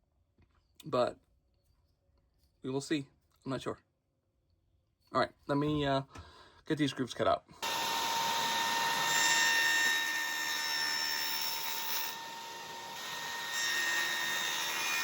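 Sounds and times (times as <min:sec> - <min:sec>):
power tool whining while cutting wood: 0:07.6 - 0:15.0.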